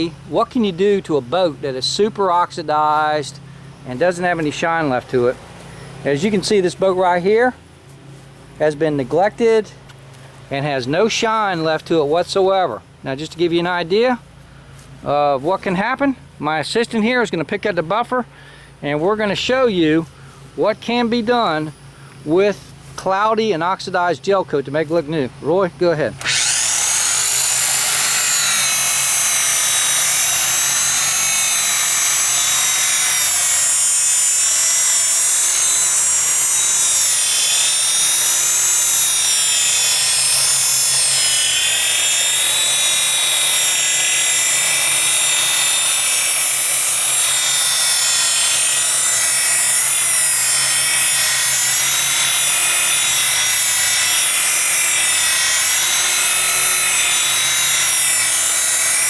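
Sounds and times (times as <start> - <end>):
electric rotary buffer whine: 25.4 - 59.0.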